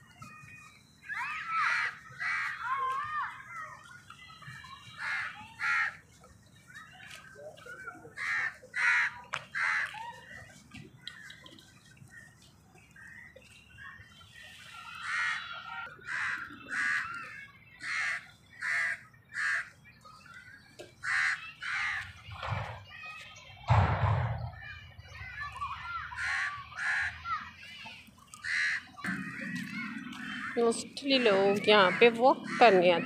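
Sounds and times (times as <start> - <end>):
low thump: 23.7 - 24.8.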